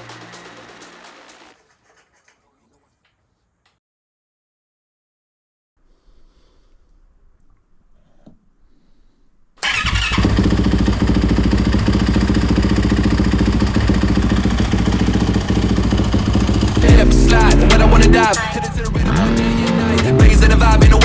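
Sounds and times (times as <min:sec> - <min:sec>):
motorcycle engine starting and running: 0:00.0 - 0:01.6, 0:09.6 - 0:21.0.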